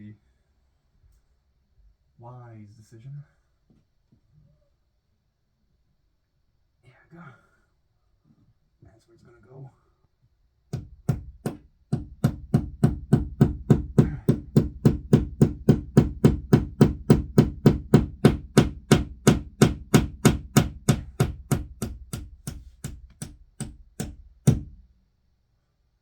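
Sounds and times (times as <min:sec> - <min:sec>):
hammer hitting nail: 0:10.7 - 0:24.8.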